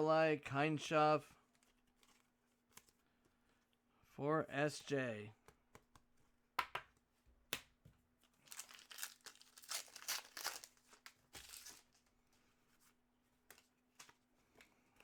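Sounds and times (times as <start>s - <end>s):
wrappers rustling and crinkling: 8.3s - 14.3s.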